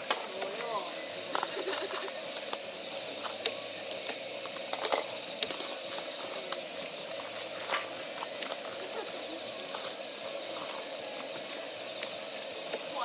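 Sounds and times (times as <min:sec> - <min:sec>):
campfire crackling and popping: 0:00.0 - 0:09.0
high-pitched whine: 0:00.0 - 0:13.0.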